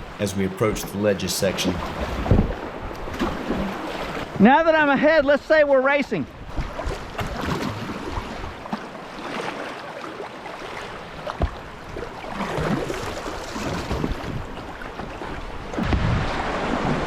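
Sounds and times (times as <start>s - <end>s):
paddle strokes splashing: 0.0s - 4.4s, 6.4s - 17.0s
river water rushing: 0.0s - 4.4s
wind buffeting microphone: 1.5s - 5.6s, 12.4s - 17.0s.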